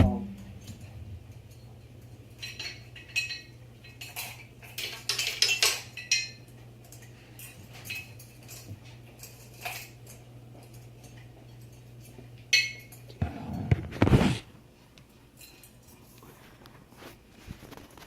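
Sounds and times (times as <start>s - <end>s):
metal fan parts clinking: 0.0s - 13.6s, 15.2s - 16.2s
steady low hum: 0.0s - 17.8s.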